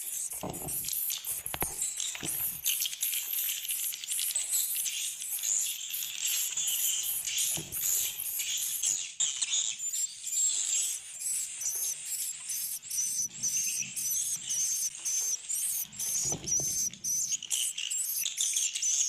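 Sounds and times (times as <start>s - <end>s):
swiftlets twittering: 10.8s - 19.0s.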